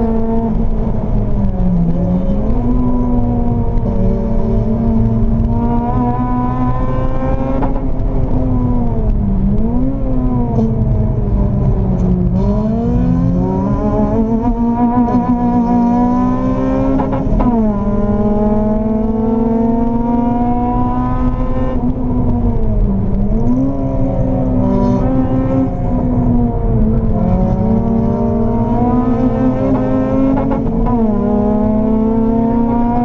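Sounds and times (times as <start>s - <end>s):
car engine revving through gears: 0.0s - 33.0s.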